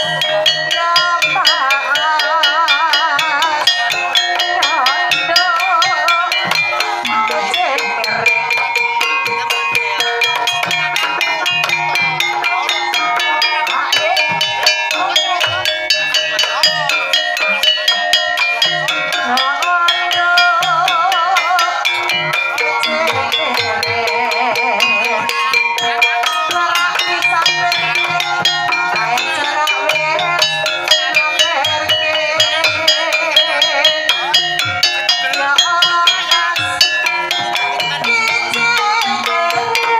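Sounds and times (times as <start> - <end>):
drum strokes: 0.0 - 39.9
struck metallophone notes: 0.0 - 39.9
wavering vocal-like line: 0.0 - 39.9.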